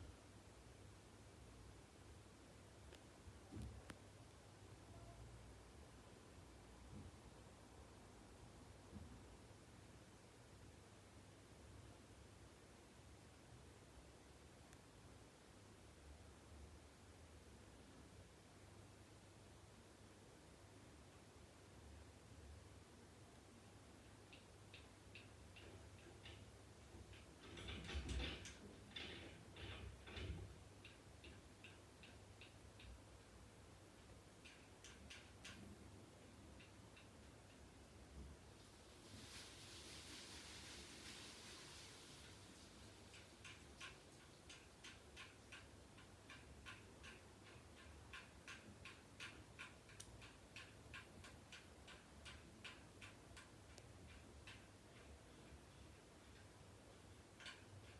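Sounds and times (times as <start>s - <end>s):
rustling and knocking: 24.3s - 33.0s
bird ticking: 43.1s - 56.6s.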